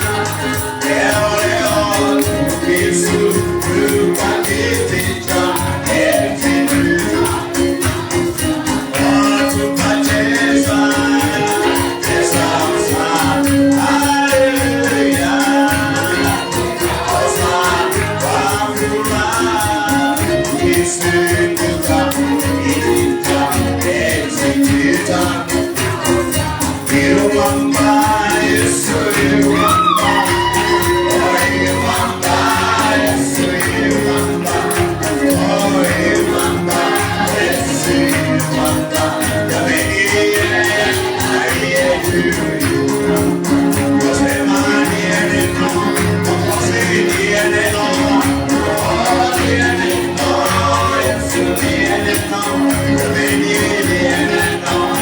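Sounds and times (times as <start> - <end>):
fast percussive beat: 0.0 - 55.0
group singing gospel: 0.0 - 55.0.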